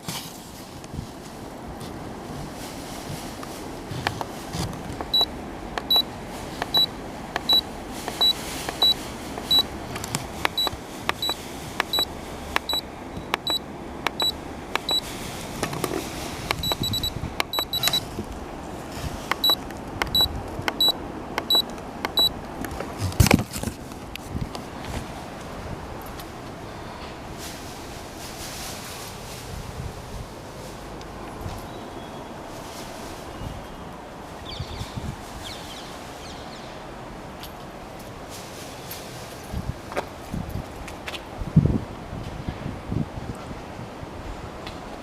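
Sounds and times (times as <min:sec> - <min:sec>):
short high electronic beeps: 0:06.7 - 0:07.6, 0:08.2 - 0:09.7, 0:10.6 - 0:12.8, 0:13.4 - 0:13.6, 0:14.2 - 0:15.0, 0:16.6 - 0:18.0, 0:19.4 - 0:21.6.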